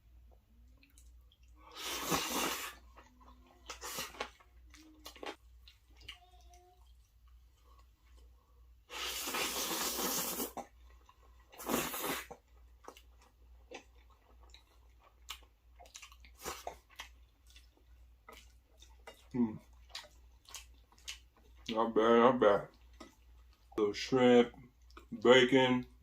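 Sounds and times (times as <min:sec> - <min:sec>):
chewing with wet mouth clicks: 0:00.3 - 0:01.6, 0:02.9 - 0:08.3, 0:12.3 - 0:21.8, 0:22.7 - 0:23.8, 0:24.6 - 0:25.2.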